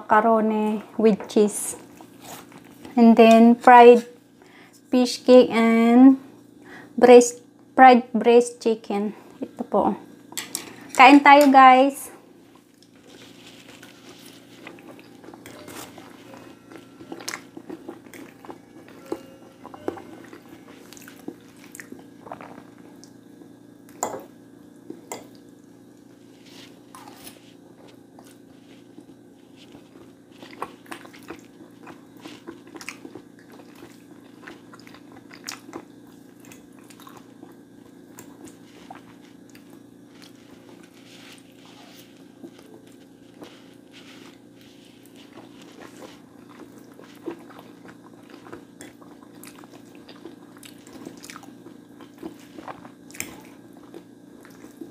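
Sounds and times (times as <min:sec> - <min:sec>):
steady low hum: 0:00.0 - 0:54.9
person chewing food: 0:12.5 - 0:24.0, 0:24.8 - 0:54.9.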